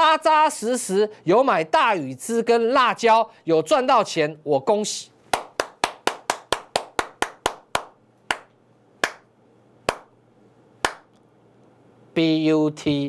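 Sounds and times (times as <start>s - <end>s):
hand claps: 5.3s - 9.3s, 9.9s - 10.1s, 10.8s - 11.1s.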